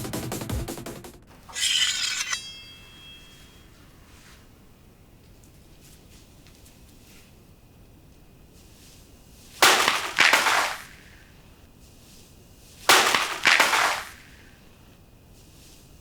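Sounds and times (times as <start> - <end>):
sword slashes: 1.5 - 3.7.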